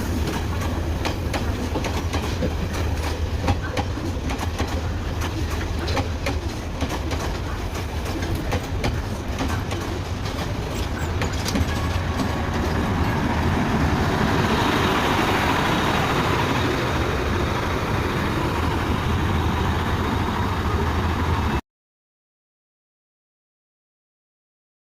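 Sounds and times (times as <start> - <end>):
train engine drone: 0.0 - 21.6
wheels clicking over rail joints: 0.2 - 13.5
rushing noise: 7.4 - 21.6.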